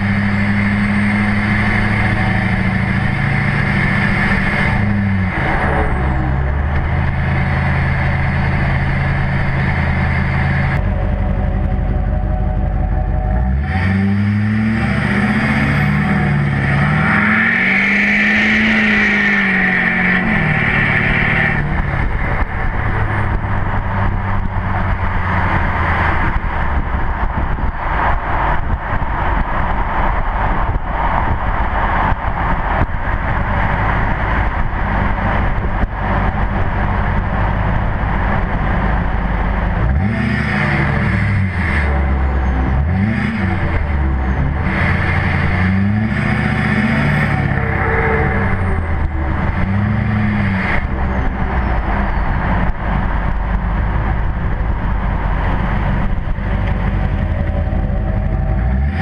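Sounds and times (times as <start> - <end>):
diesel truck exhaust revving: 0.0 - 59.0
road noise: 0.0 - 59.0.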